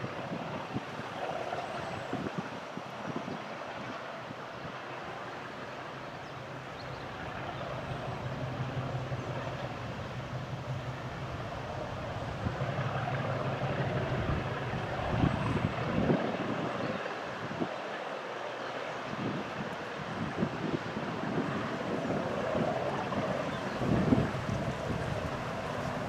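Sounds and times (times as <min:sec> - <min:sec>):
diesel locomotive engine humming: 0:04.9 - 0:15.9, 0:23.2 - 0:26.0.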